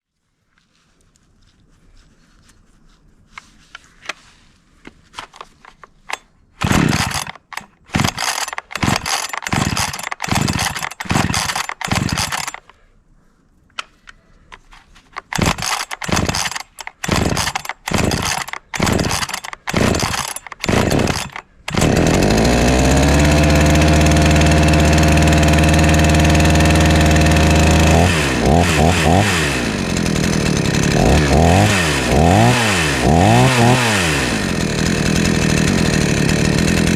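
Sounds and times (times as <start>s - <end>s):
chainsaw starter cord pulls: 5.1s - 12.8s, 13.8s - 36.9s
chainsaw idling: 6.6s - 12.7s, 15.2s - 36.9s
chainsaw revving: 6.6s - 12.7s, 15.2s - 36.9s.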